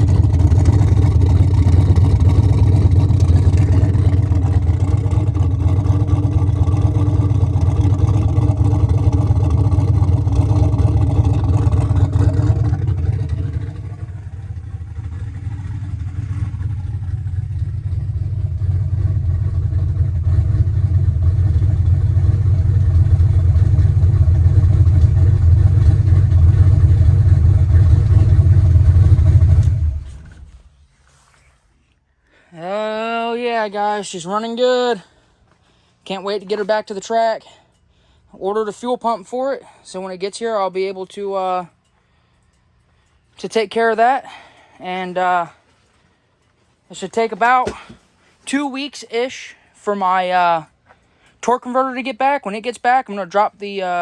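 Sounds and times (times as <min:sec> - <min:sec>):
car engine idling deeply: 0:00.0 - 0:30.8.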